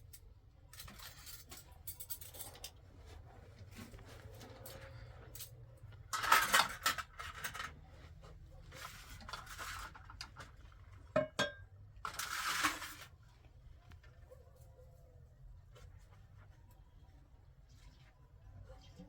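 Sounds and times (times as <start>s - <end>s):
dishes scraping: 11.1s - 13.0s.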